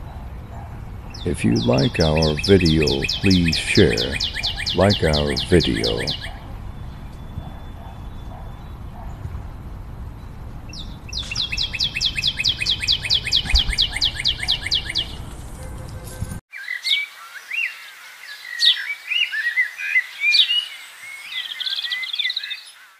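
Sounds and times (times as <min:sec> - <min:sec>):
birds chirping and whistling: 0:00.0 - 0:09.4, 0:10.1 - 0:17.7
bird calling in falling notes: 0:01.2 - 0:06.4.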